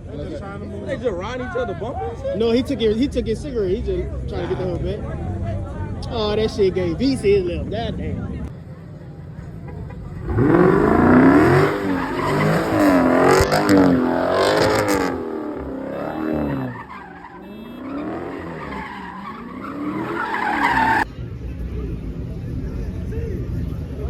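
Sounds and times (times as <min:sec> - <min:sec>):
car engine revving hard: 0:10.2 - 0:21.1
tyres screeching: 0:10.2 - 0:21.1.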